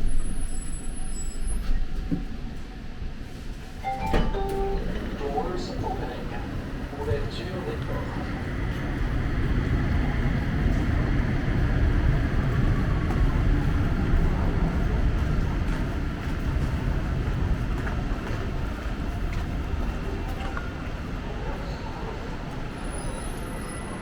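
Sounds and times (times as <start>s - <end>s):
train rumbling at station: 0.0s - 24.0s.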